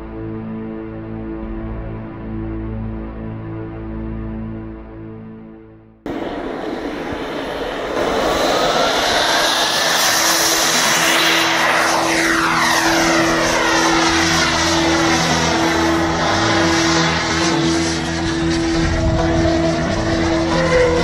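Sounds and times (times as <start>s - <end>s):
model jet aircraft flying past: 6.1s - 21.0s.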